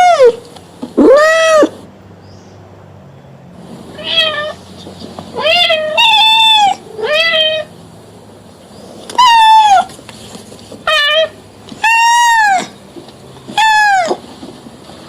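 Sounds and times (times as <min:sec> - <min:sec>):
cat meowing: 0:01.0 - 0:01.8, 0:04.0 - 0:04.6, 0:05.4 - 0:07.7, 0:09.1 - 0:09.9, 0:10.9 - 0:12.8, 0:13.5 - 0:14.2.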